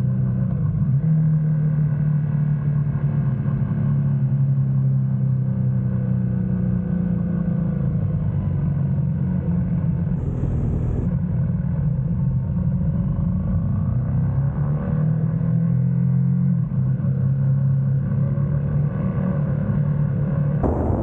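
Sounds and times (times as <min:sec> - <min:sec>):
motorcycle engine running: 0:10.2 - 0:11.1, 0:20.6 - 0:21.0.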